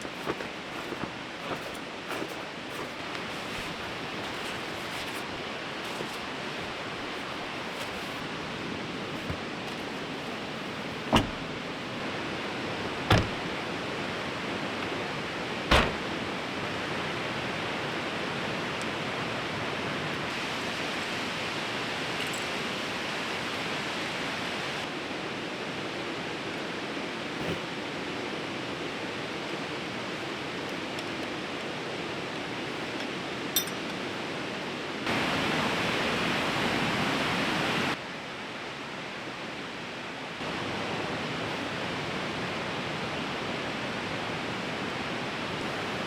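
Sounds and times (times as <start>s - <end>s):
river rushing: 0.0s - 46.0s
sharp thumps: 15.7s - 16.2s.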